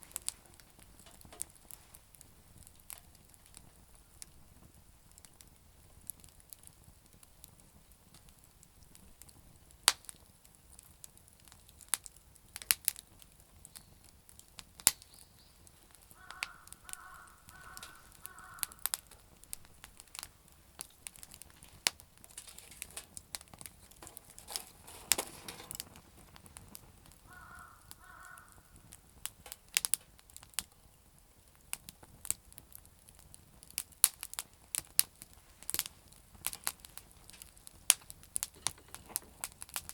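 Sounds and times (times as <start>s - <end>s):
campfire crackling and popping: 0.0s - 39.9s
bird calling: 16.2s - 18.9s, 27.3s - 28.7s.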